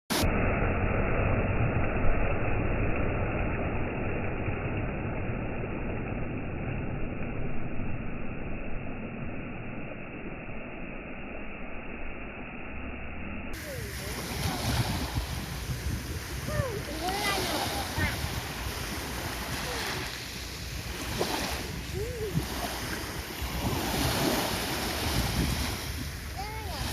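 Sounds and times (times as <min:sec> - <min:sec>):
waves washing onto beach: 0:13.5 - 0:26.9.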